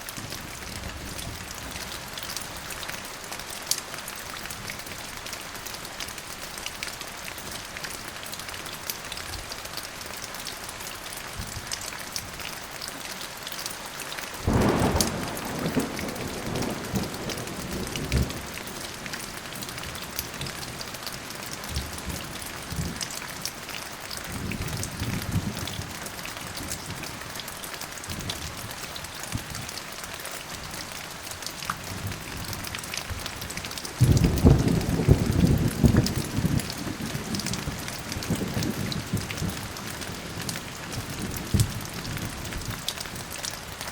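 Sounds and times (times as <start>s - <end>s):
steady rain falling: 0.0s - 43.9s
loud thunderclap: 14.5s - 18.7s
thunder rumbling: 14.5s - 19.0s, 34.0s - 42.3s.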